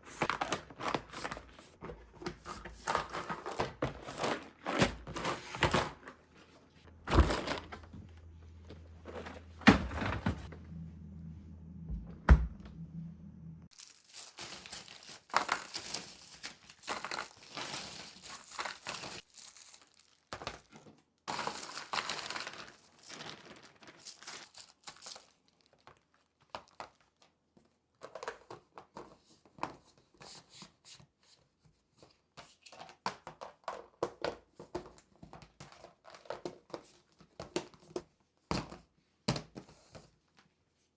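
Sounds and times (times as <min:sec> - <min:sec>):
low hum: 0:06.9 - 0:13.7
plastic packaging crinkling: 0:13.7 - 0:20.5, 0:21.4 - 0:26.1.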